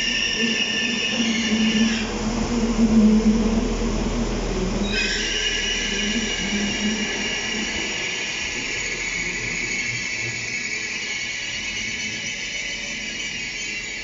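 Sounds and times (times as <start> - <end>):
train high-pitched hissing whine: 0.0 - 14.0
low engine hum: 2.1 - 5.0.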